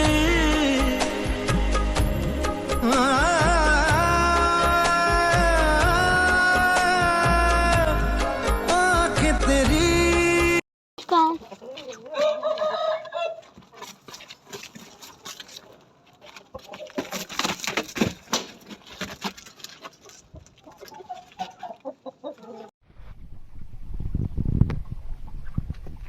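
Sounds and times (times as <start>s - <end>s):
roosters clucking: 11.0s - 22.7s.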